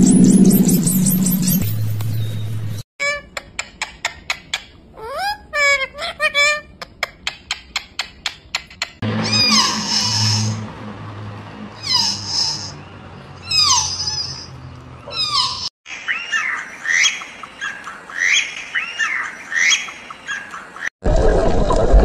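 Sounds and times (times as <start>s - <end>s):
animal squawks sweeping down: 9.2s - 10.6s.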